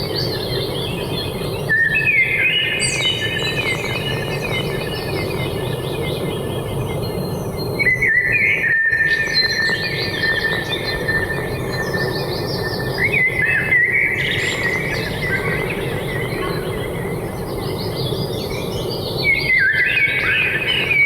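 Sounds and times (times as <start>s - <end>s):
birds chirping: 9.4s - 21.0s.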